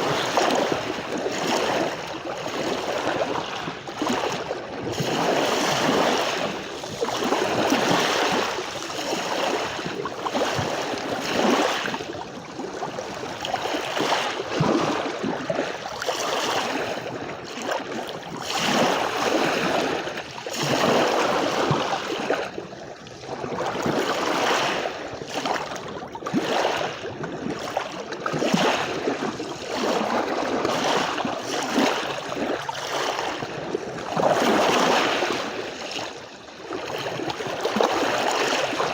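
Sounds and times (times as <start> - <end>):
sea waves breaking on a beach: 0.0 - 38.9.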